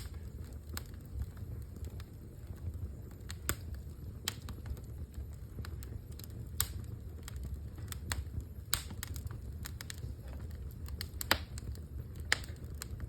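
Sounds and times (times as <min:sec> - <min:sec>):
fire crackling and popping: 0:00.0 - 0:13.0
low steady rumble: 0:00.0 - 0:13.0.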